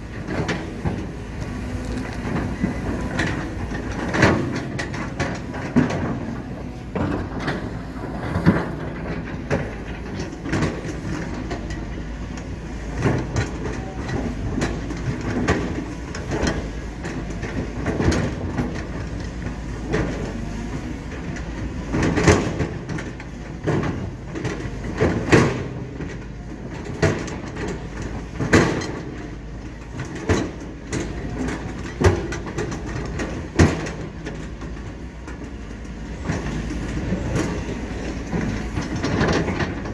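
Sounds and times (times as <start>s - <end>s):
diesel machinery running: 0.0s - 39.9s.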